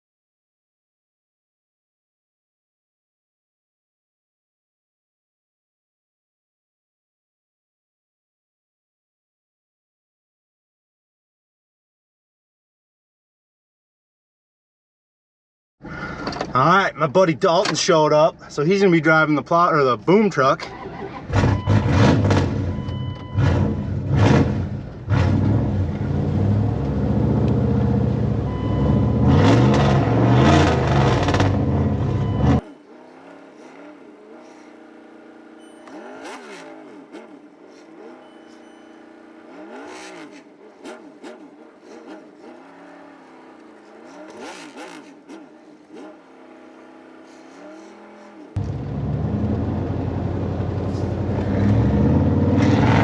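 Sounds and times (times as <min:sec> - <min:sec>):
truck engine revving: 0:18.5 - 0:53.0
faint thin engine revving: 0:19.7 - 0:53.0.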